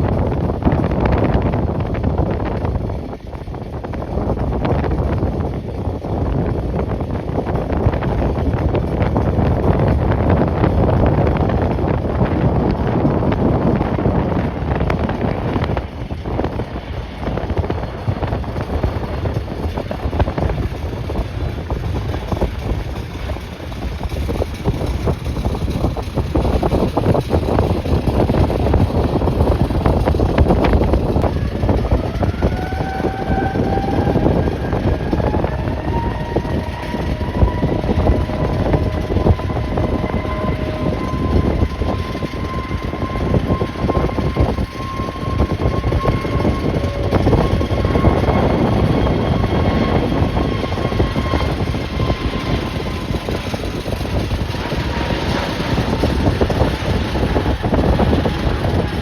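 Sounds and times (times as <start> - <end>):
jet engines whining: 0.0 - 59.0
wind rumbling on microphone: 0.0 - 59.0.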